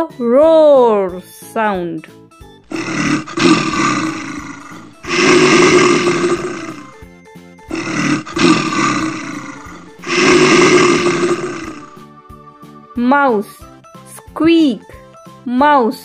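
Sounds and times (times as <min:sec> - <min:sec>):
lion roaring: 0:02.7 - 0:07.0, 0:07.7 - 0:12.0.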